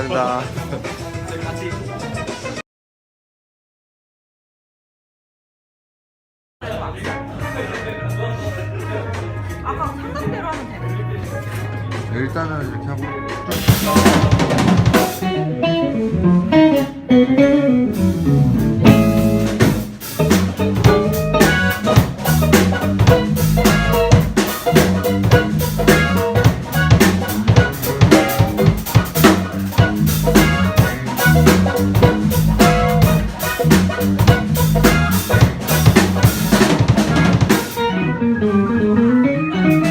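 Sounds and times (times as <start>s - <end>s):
drums steady groove: 0.0s - 2.6s, 13.1s - 15.5s, 17.8s - 37.9s
live jazz band playing: 0.0s - 2.6s, 7.0s - 39.9s.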